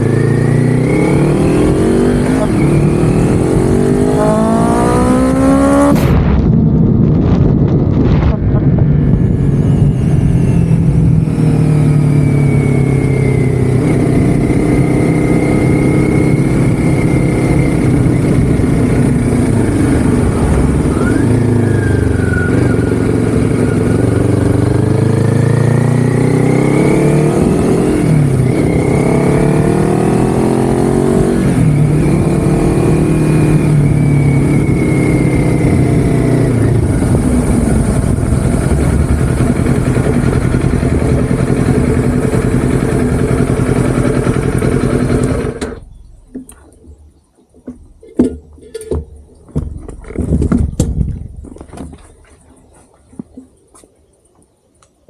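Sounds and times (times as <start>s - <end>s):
vehicle engine running: 7.3s - 46.4s.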